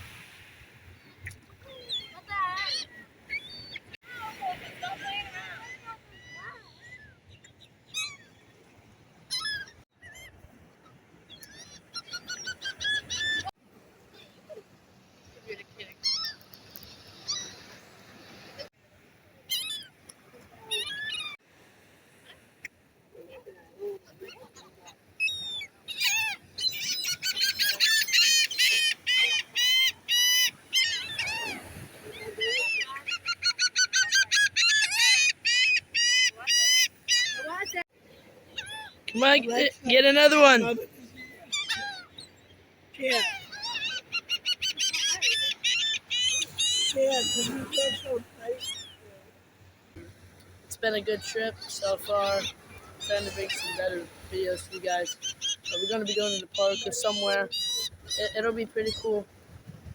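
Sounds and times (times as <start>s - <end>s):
gulls calling: 24.1s - 49.1s, 50.1s - 59.2s.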